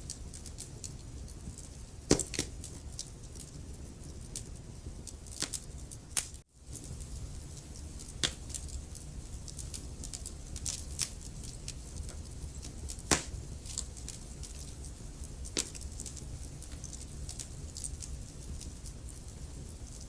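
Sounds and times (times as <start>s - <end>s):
logs crackling and popping: 0.0s - 20.0s
low rumble of flame: 0.0s - 20.0s
loud wood snaps: 2.1s - 2.6s, 5.3s - 5.6s, 8.2s - 8.6s, 12.9s - 13.9s.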